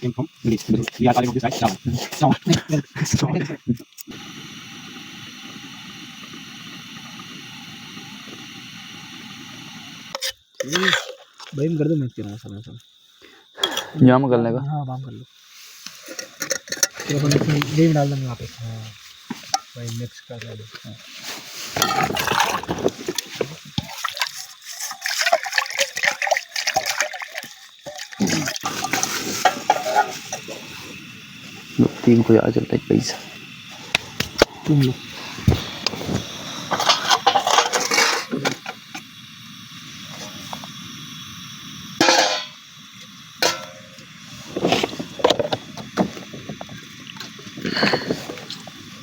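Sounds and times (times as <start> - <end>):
wet food stirred in pot: 21.1 - 30.6
cookware clattering and knocking: 21.8 - 22.7, 36.8 - 38.7, 42.0 - 42.6, 43.4 - 43.9.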